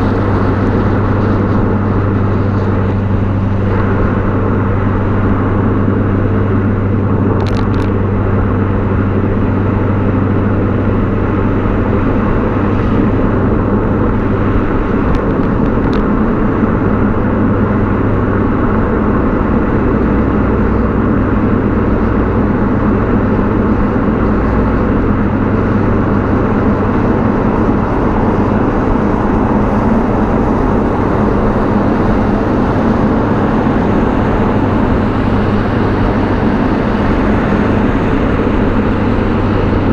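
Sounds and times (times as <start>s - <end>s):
car exhaust droning: 0.0s - 39.9s
road and wind noise: 0.0s - 39.9s.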